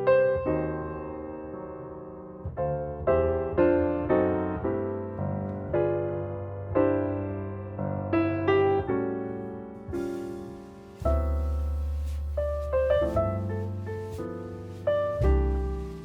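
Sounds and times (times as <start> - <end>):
piano chords ringing: 0.0 - 16.0
sustained bass: 11.0 - 16.0.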